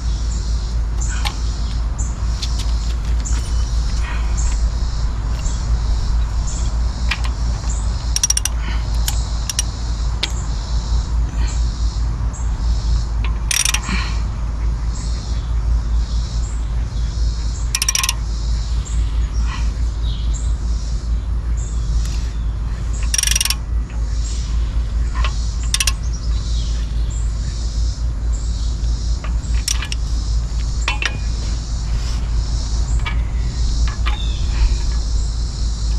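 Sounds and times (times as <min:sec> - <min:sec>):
steady low rumble: 0:00.0 - 0:35.9
ratchet rasping: 0:01.0 - 0:10.4, 0:13.2 - 0:14.0, 0:17.7 - 0:18.2, 0:22.8 - 0:23.7, 0:24.9 - 0:26.4, 0:29.1 - 0:35.9
metal tools clinking: 0:02.4 - 0:04.6, 0:06.2 - 0:09.7, 0:13.5 - 0:13.9, 0:17.8 - 0:18.2, 0:23.0 - 0:23.6, 0:29.2 - 0:35.1.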